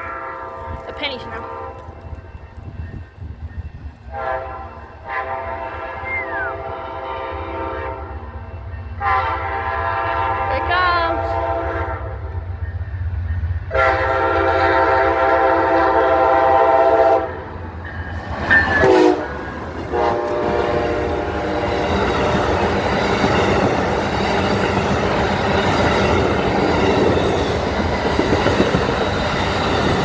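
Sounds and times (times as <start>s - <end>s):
train air horn blasts: 0.0s - 1.9s, 4.1s - 8.3s, 9.0s - 12.4s, 13.7s - 17.4s, 18.7s - 22.6s
train wheel and rail noise: 0.0s - 30.0s.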